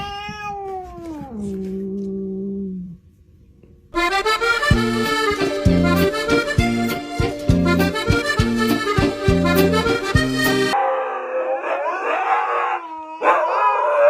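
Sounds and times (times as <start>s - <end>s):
accordion music: 4.0s - 10.8s.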